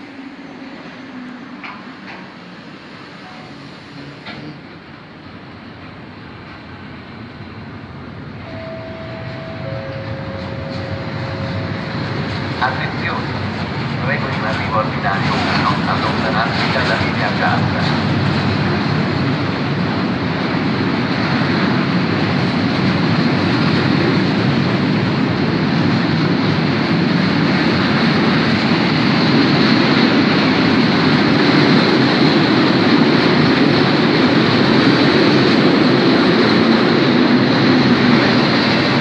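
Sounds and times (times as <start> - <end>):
freight train wheels clattering: 8.5 - 39.0.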